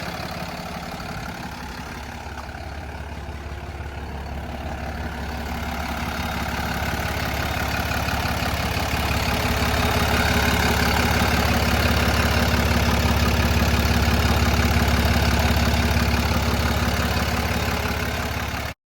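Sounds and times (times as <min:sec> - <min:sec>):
diesel engine idling: 0:00.0 - 0:18.8.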